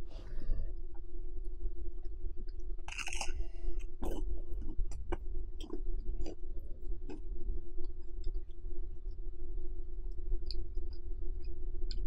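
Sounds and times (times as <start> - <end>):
chewing toast with crunches: 1.9 - 9.2.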